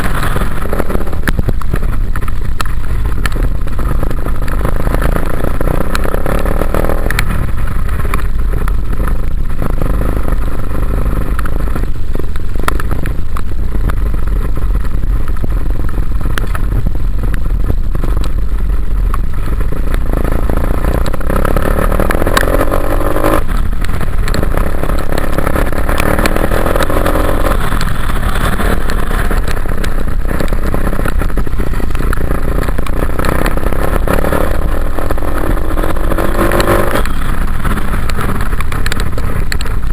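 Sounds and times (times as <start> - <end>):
dirt bike engine revving: 24.3 - 31.2, 32.2 - 38.5.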